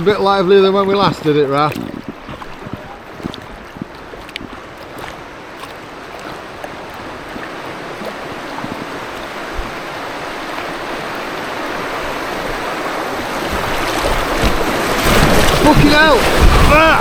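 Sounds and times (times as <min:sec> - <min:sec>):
river rapids rushing: 0:04.0 - 0:17.0.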